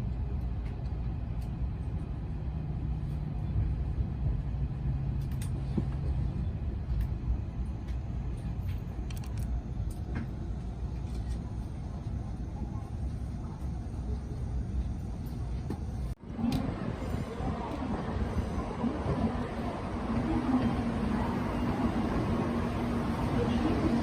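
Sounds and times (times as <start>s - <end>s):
train running rumble: 0.0s - 24.0s.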